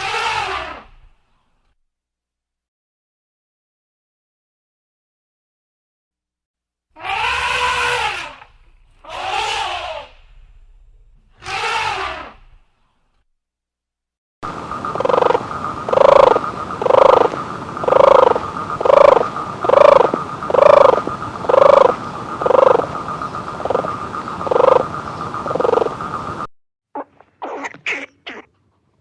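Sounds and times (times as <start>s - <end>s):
animal calling: 0.0s - 1.0s, 7.0s - 10.4s, 11.3s - 12.6s, 14.5s - 28.6s
steady high hum: 7.3s - 13.1s, 14.4s - 26.5s.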